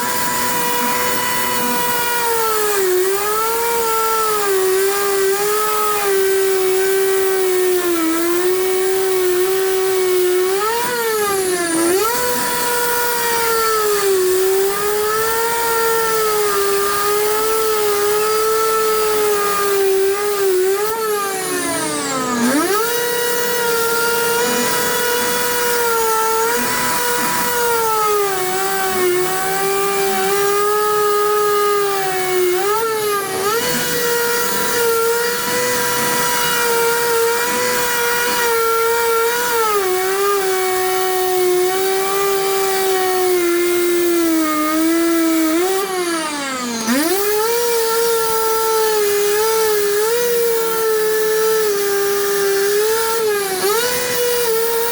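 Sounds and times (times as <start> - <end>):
power cutting tool motor whining: 0.0 - 54.9.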